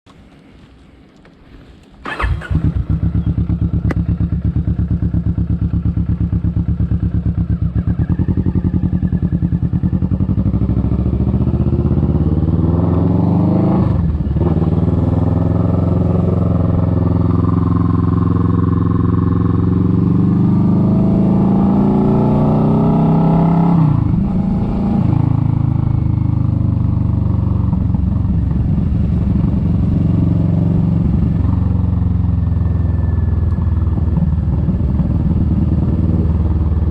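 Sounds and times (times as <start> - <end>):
motorcycle engine revving: 2.0 - 36.9.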